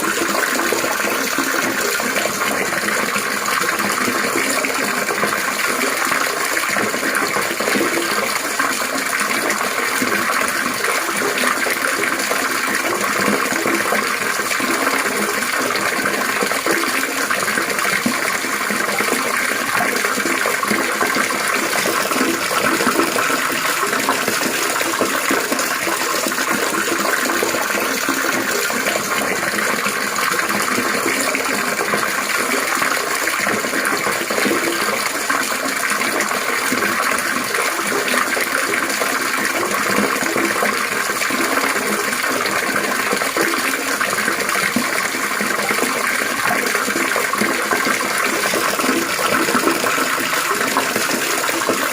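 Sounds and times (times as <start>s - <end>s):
water trickling and splashing: 0.0s - 51.9s.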